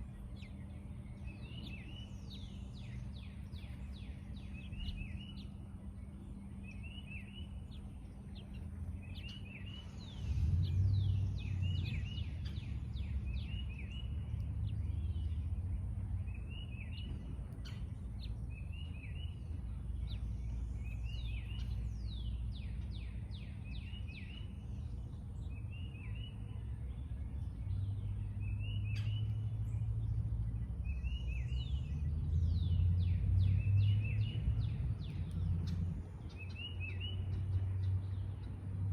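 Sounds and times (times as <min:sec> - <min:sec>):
low rumble: 0:00.0 - 0:36.7
songbirds chirping: 0:00.0 - 0:38.9.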